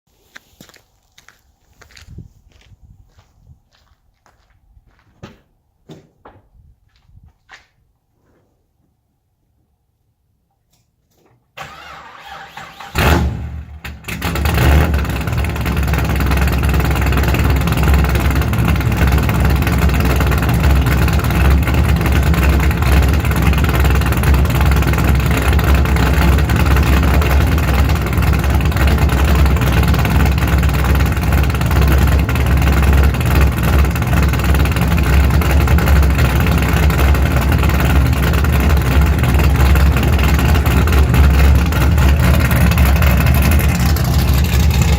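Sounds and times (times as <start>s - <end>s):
starter motor cranking: 11.6s - 15.6s
car engine idling choppily: 13.6s - 44.9s.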